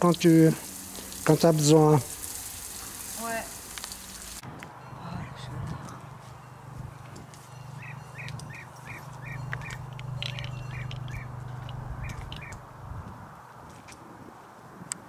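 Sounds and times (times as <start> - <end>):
bird chirping: 6.4 - 12.8.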